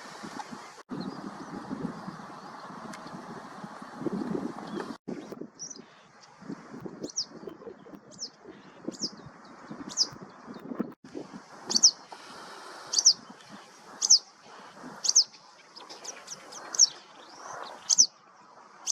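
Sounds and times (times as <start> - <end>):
bird calling with high downslurred notes: 11.7 - 12.1, 12.8 - 13.4, 14.0 - 14.3, 15.0 - 18.2.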